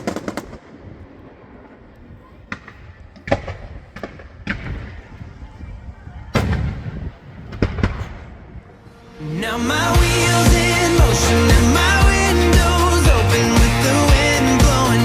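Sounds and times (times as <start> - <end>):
fireworks bangs: 0.0 - 8.9
music: 8.8 - 15.0.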